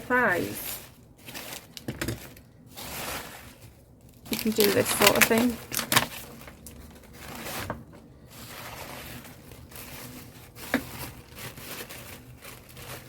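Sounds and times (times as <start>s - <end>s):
paper napkin rustling and scraping: 0.0s - 13.0s.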